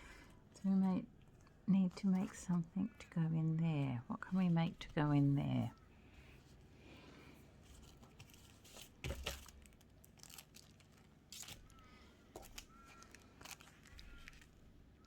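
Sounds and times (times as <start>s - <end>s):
paper rustling and crinkling: 7.6s - 14.7s.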